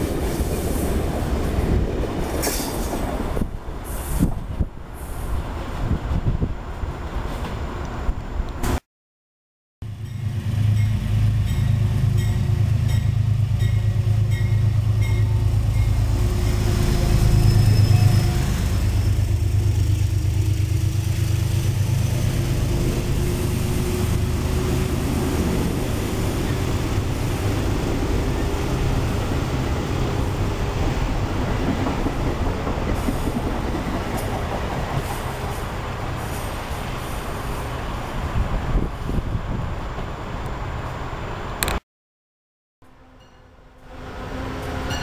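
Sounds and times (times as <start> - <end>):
diesel locomotive engine drone: 9.8 - 41.7, 42.9 - 45.0.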